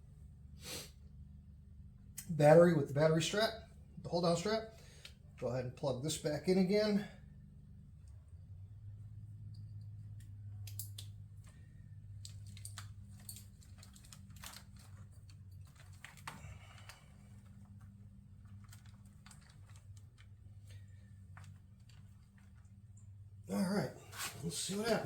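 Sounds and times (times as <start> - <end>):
steady low hum: 0.0 - 25.0
plastic connectors clicking: 10.6 - 11.5.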